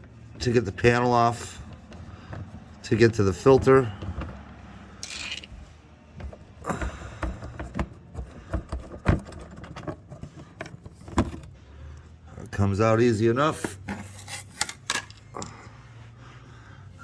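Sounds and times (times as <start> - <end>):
hand tools clicking and knocking: 1.7 - 11.6, 13.6 - 15.6.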